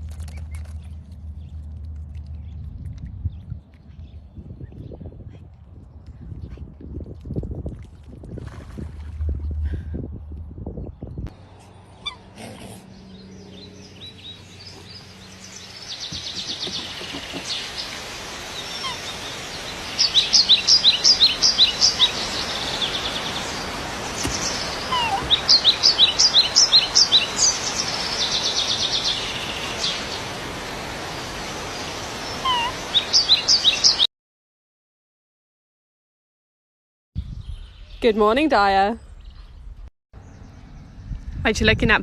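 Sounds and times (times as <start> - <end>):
outdoor hiss: 14.2 - 34.0.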